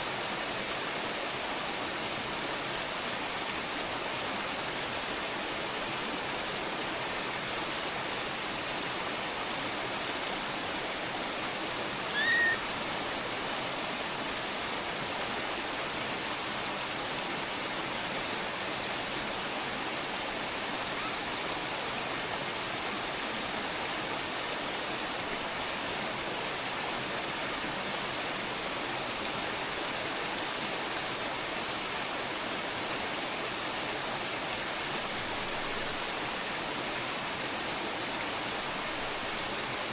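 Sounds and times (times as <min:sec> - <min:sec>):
bird chirp: 0:12.1 - 0:14.5.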